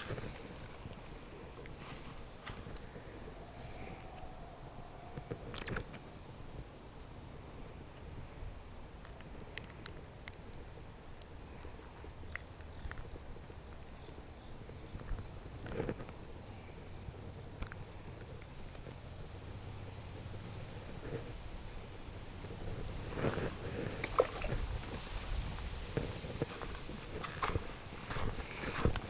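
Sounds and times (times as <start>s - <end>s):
insect chirping: 0.0s - 29.0s
small clicks and ticks: 4.1s - 6.7s, 7.4s - 25.2s
flowing water: 23.8s - 25.2s.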